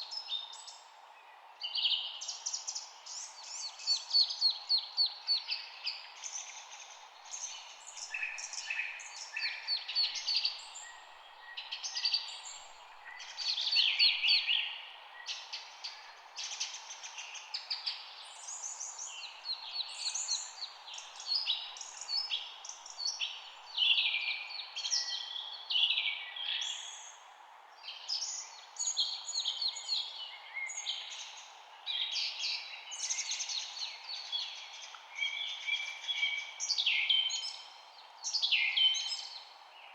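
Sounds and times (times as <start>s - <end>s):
songbirds chirping and trilling: 0.0s - 39.9s
steady background hiss: 0.0s - 39.9s.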